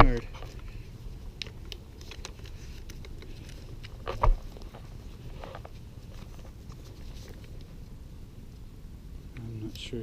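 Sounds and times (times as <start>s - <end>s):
rustling: 0.0s - 8.7s.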